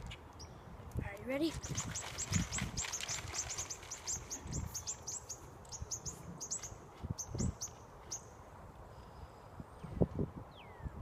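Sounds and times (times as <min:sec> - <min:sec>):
bird chirping rapidly: 0:01.6 - 0:08.3.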